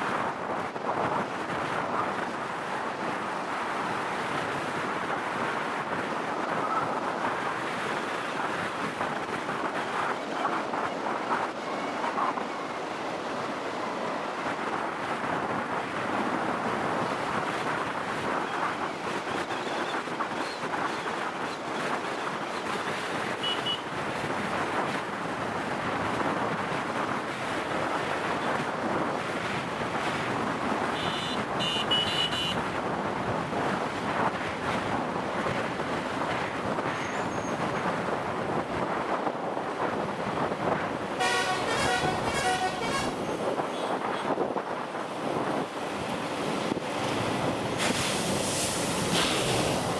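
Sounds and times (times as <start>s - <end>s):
wind buffeting microphone: 0.0s - 49.9s
vehicle horn honking: 23.4s - 23.8s, 31.0s - 32.6s, 41.2s - 44.0s.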